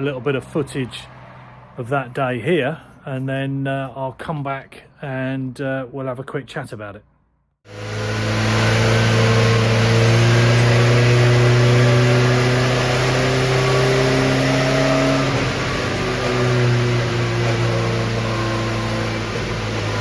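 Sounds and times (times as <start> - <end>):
race car engine revving: 7.7 - 20.0.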